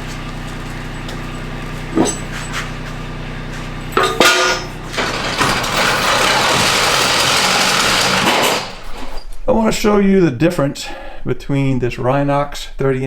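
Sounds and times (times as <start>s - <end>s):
motor humming: 0.0s - 9.0s.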